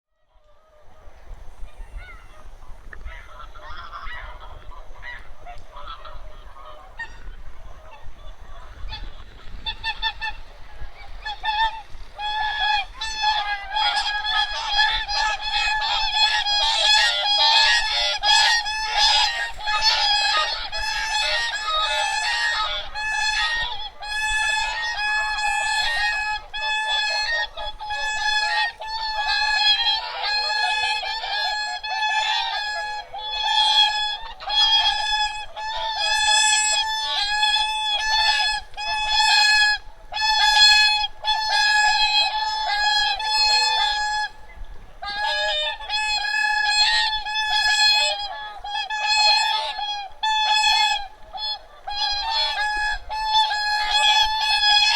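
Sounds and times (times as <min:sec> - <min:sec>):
geese and swans honking: 0:00.4 - 0:54.9.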